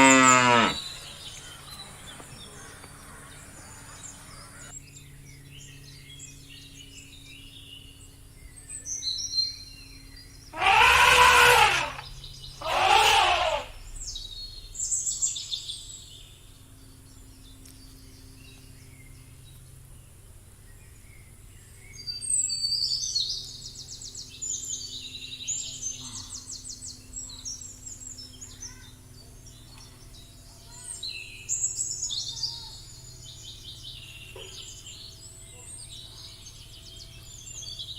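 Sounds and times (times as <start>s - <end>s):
large animal harsh calls: 0.0s - 0.9s, 10.5s - 13.9s
birds chirping: 0.0s - 37.9s
outdoor background noise: 0.0s - 37.9s.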